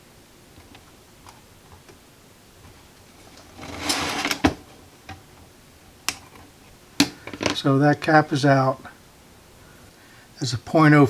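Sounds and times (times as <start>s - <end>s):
tools scraping and rattling: 2.6s - 5.2s.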